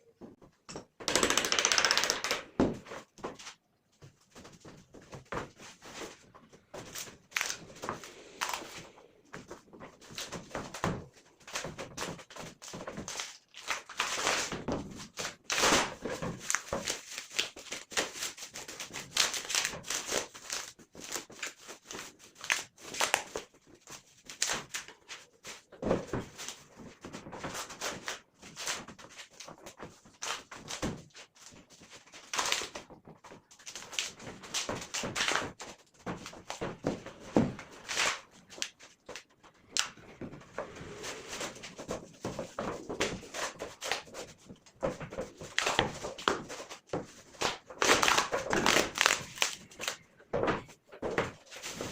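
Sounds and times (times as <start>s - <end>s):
wooden strips knocking and scraping: 32.8s - 51.9s.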